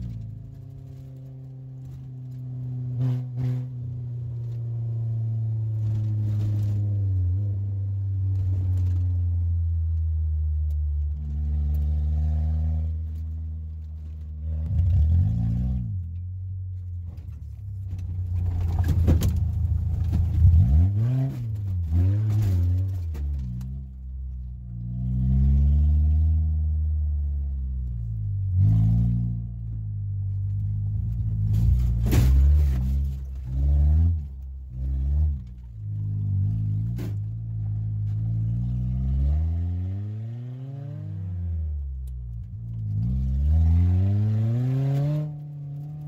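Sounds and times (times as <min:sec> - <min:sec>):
car engine revving: 0:00.0 - 0:46.0
knocks and rattles: 0:17.2 - 0:20.7.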